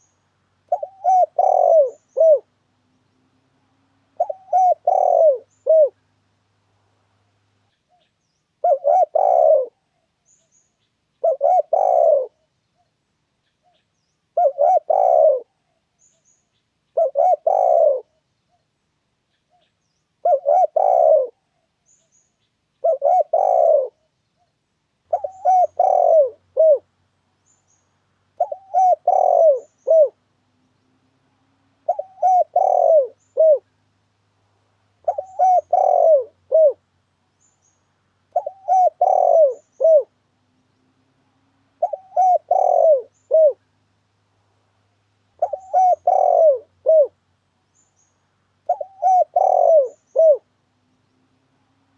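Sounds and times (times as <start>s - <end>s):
dove cooing: 0.0s - 2.6s, 4.1s - 6.1s, 8.6s - 10.1s, 11.2s - 12.5s, 14.3s - 15.8s, 16.9s - 18.2s, 20.2s - 21.7s, 22.8s - 24.1s, 25.1s - 26.9s, 28.3s - 30.3s, 31.7s - 33.8s, 35.0s - 36.8s, 38.3s - 40.2s, 41.7s - 43.7s, 45.4s - 47.2s, 48.6s - 50.6s.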